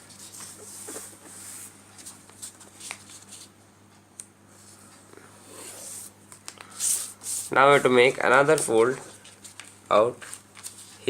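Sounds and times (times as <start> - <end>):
paper rustling and creasing: 0.0 - 3.5, 5.7 - 11.0.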